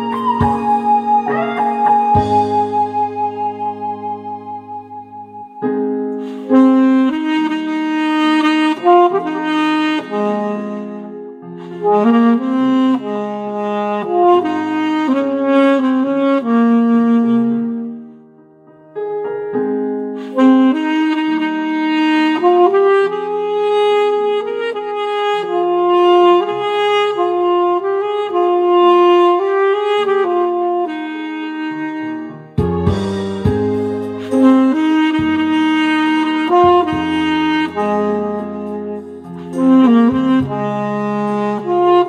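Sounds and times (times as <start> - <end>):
backing accompaniment: 0.0 - 5.9, 31.9 - 42.0
saxophone melody: 0.0 - 18.3, 19.2 - 42.0.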